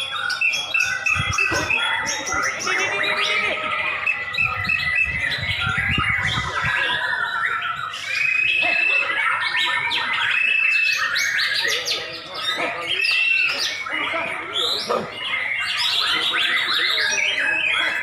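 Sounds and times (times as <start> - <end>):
long level bird whistles: 3.8 - 11.9
songbird singing rapid varied song: 3.9 - 11.7.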